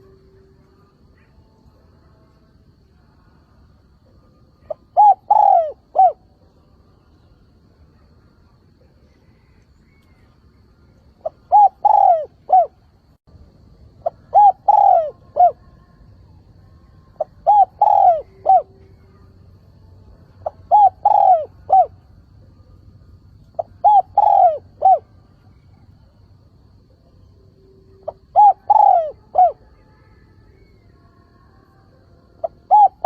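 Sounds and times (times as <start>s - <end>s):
dove cooing: 4.6s - 6.4s, 11.2s - 12.8s, 14.0s - 15.7s, 17.2s - 19.0s, 20.4s - 22.0s, 23.5s - 25.9s, 27.9s - 29.9s, 32.4s - 33.0s.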